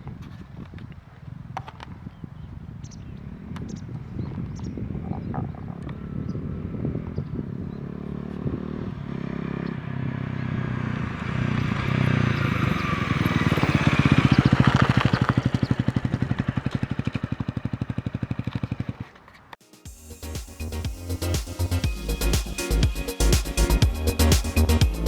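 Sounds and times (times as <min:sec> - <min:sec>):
motorcycle passing by: 0:02.8 - 0:19.6.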